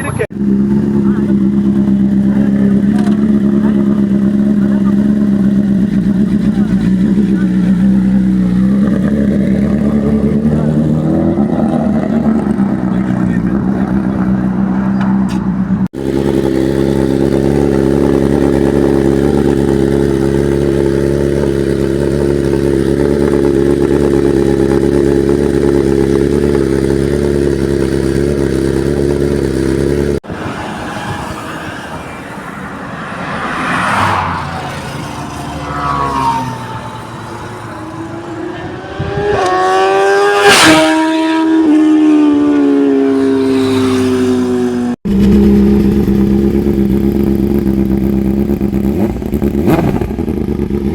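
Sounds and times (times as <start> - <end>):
motorcycle engine idling: 0.0 - 30.2, 42.7 - 50.9
motorcycle passing by: 0.0 - 50.9
engine revving with rising whine: 15.9 - 50.7.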